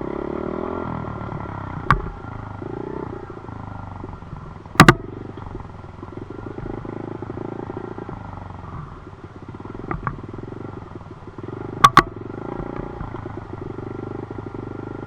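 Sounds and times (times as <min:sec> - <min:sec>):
dirt bike engine running: 0:00.0 - 0:15.0
sharp double knocks: 0:04.1 - 0:05.7.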